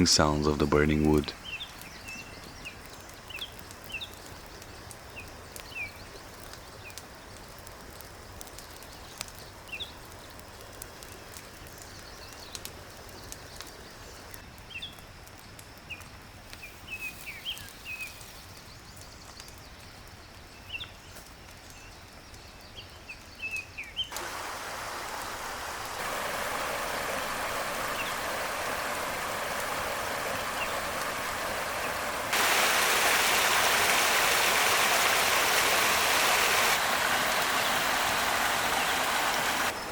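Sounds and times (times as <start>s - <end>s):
birds chirping: 0.0s - 6.1s, 23.9s - 39.9s
wood fire crackling: 0.0s - 39.9s.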